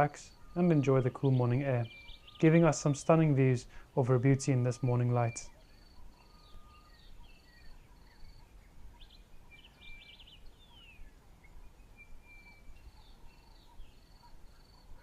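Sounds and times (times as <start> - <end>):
bird chirps: 0.0 - 15.0
descending bird notes: 0.0 - 15.0
high pulsed bird whistle: 5.4 - 8.3.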